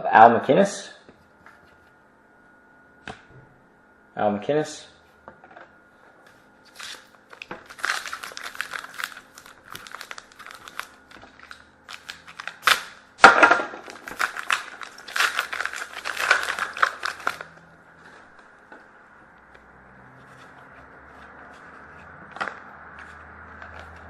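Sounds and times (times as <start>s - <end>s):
foil wrapper crinkling and tearing: 6.7s - 13.0s, 13.8s - 17.6s.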